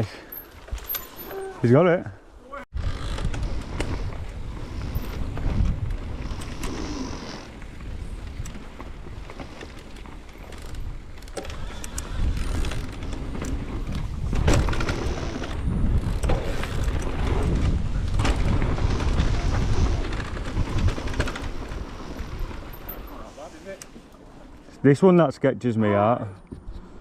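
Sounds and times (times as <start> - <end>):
wind on microphone: 2.7 - 9.7, 10.6 - 22.7
bike tyre noise: 2.7 - 24.7
bike rattling and knocking: 2.8 - 23.0.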